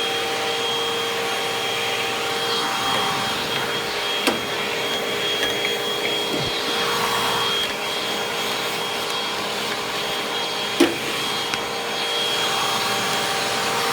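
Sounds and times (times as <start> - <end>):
vacuum cleaner running: 0.0 - 13.9.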